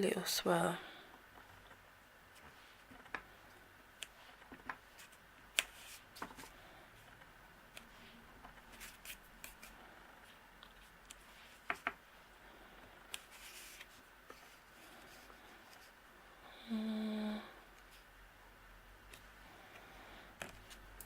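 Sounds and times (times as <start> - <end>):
faint paper handling: 13.1 - 16.0.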